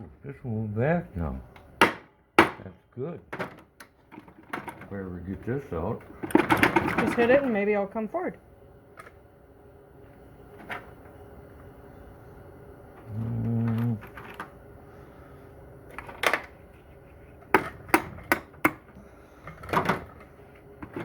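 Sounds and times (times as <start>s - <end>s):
brief low hum: 13.0s - 14.0s.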